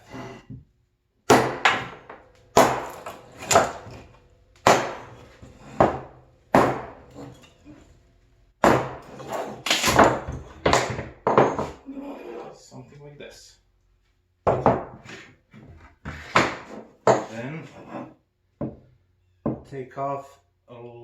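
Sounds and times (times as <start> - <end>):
hatchet chopping wood: 1.3 - 7.4, 8.6 - 11.8.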